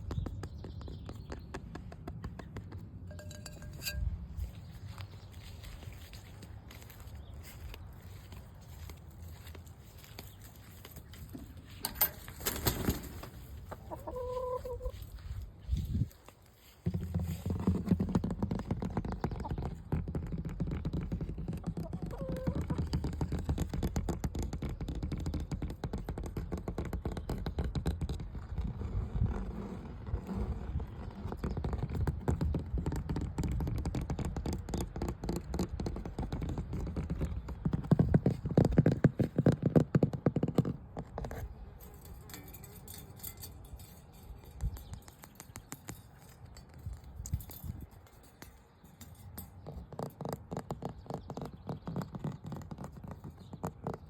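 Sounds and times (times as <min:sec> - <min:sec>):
tapping and scratching on hard surfaces: 0:00.0 - 0:05.0, 0:16.6 - 0:28.8, 0:31.0 - 0:54.0.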